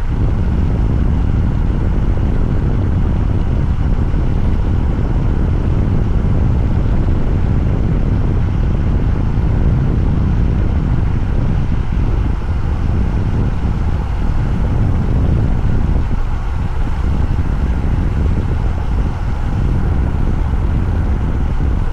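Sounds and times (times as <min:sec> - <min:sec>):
motorcycle engine rumble: 0:00.0 - 0:21.9
wind on microphone: 0:00.0 - 0:21.9.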